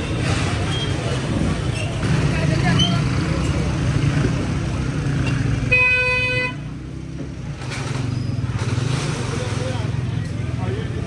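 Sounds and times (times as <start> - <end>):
traffic rumble: 0.0 - 11.0
vehicle horn beep: 5.7 - 6.6.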